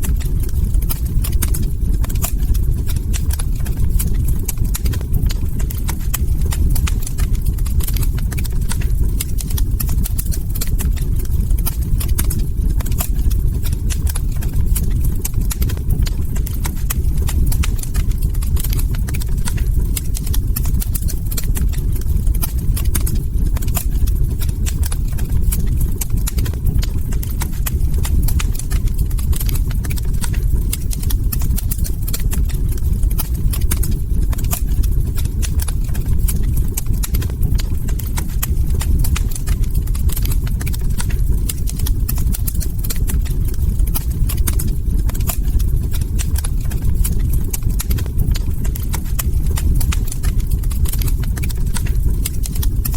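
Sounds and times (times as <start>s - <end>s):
log fire crackling: 0.0s - 52.9s.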